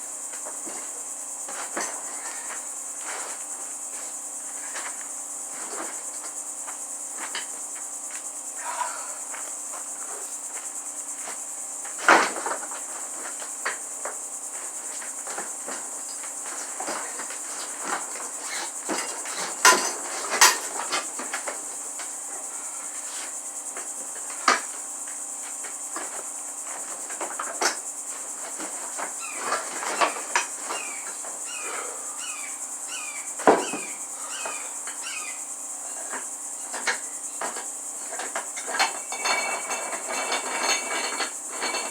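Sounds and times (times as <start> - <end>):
sharp knocks and clanks: 18.9 - 21.1, 36.1 - 41.9.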